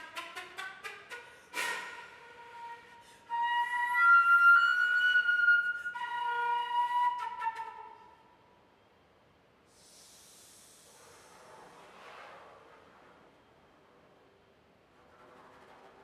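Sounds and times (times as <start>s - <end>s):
flute solo: 1.6s - 8.4s.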